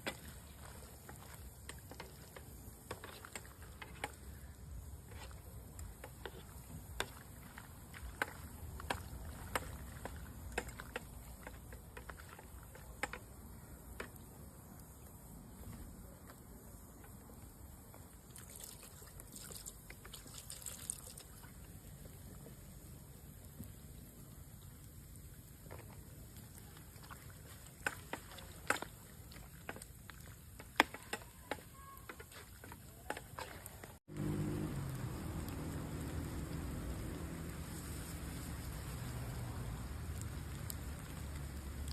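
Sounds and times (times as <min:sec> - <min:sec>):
campfire crackling: 0:00.0 - 0:41.9
low steady rumble: 0:34.1 - 0:41.9.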